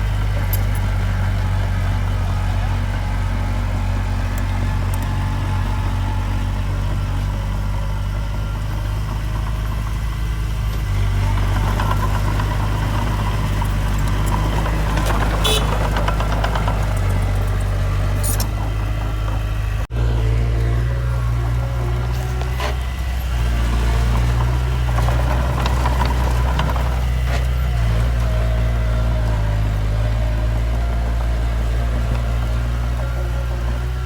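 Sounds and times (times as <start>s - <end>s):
heavy diesel machinery droning: 0.0s - 34.0s
machinery clattering: 8.7s - 34.0s
sharp metal clanks: 17.4s - 18.6s.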